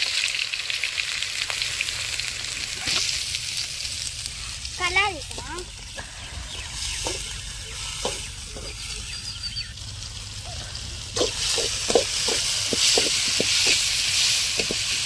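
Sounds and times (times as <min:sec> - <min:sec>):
vegetables sizzling in oil: 0:00.0 - 0:15.0
metal spoon scraping a pan: 0:11.2 - 0:15.0.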